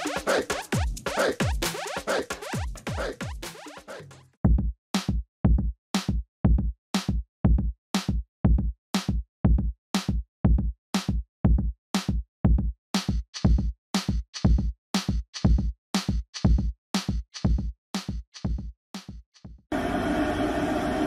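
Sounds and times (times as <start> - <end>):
electronic drum machine beat: 0.0 - 4.2, 13.0 - 19.6.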